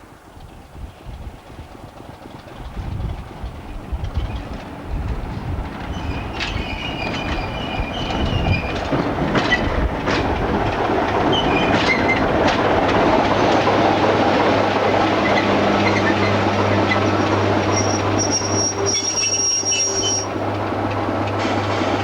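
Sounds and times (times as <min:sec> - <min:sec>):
train engine hum: 0:00.0 - 0:22.0
train running on rails: 0:00.0 - 0:22.0
high-pitched wheel squeals: 0:15.1 - 0:20.4.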